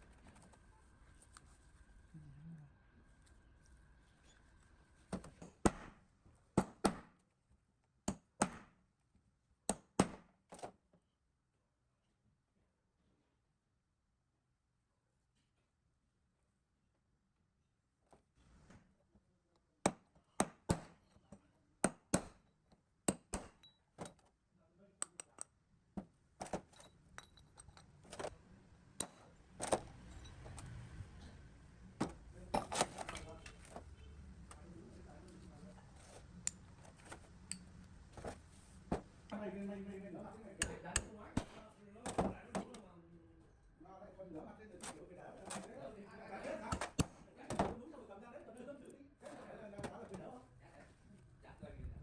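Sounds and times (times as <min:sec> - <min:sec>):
low steady hum: 0:00.0 - 0:05.1
sharp metal knocks on pump parts: 0:08.1 - 0:08.8, 0:23.1 - 0:24.1
metal tools clinking: 0:26.7 - 0:27.9.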